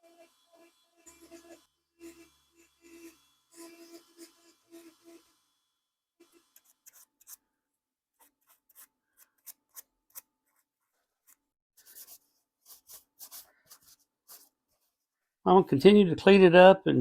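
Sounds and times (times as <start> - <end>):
tool scratching wooden pipe bowl: 0.0 - 5.4, 6.2 - 7.4, 8.2 - 14.9.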